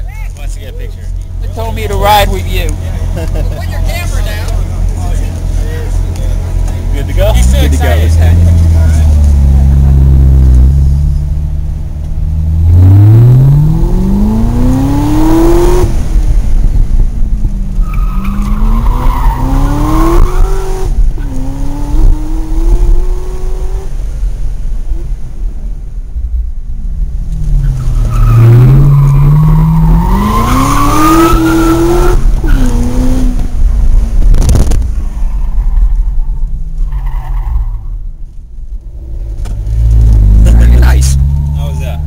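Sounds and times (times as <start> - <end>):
sports car engine revving: 1.1 - 24.1, 27.0 - 34.8.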